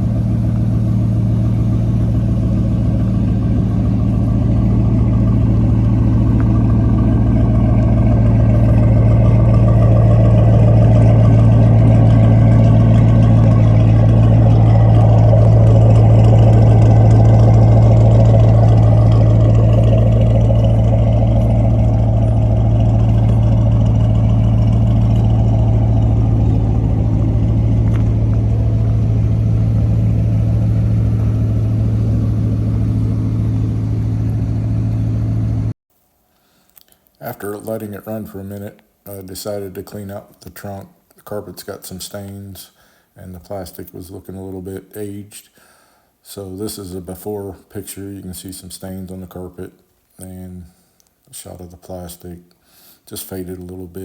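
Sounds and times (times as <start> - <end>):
car engine idling: 0.0 - 35.8.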